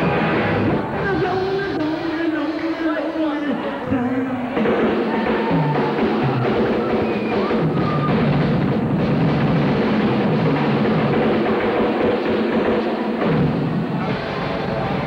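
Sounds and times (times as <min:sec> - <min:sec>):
bass line: 0:00.0 - 0:02.4, 0:03.9 - 0:12.3, 0:13.2 - 0:15.0
live rock band playing: 0:00.0 - 0:02.5
drum kit beat: 0:04.6 - 0:15.0.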